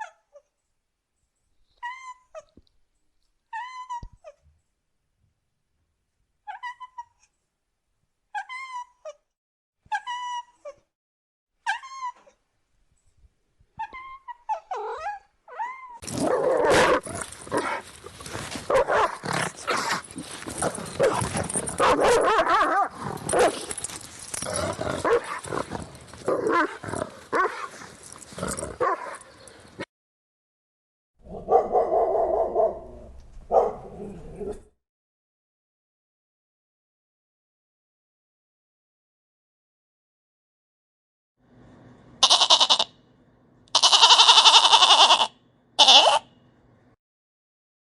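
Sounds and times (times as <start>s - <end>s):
dog whining: 13.8s - 17.9s.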